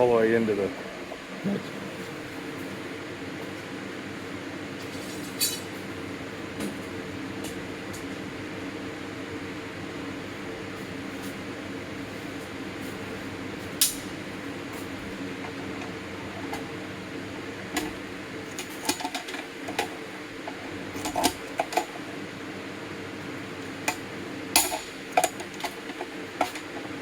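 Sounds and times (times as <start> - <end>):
fan humming: 0.0 - 27.0
metal tools clinking: 5.0 - 5.8.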